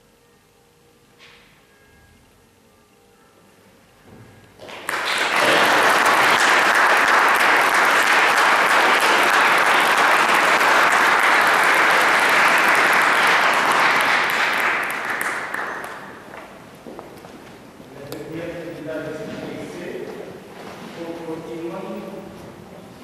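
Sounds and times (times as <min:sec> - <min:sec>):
audience applause: 0:04.6 - 0:16.6.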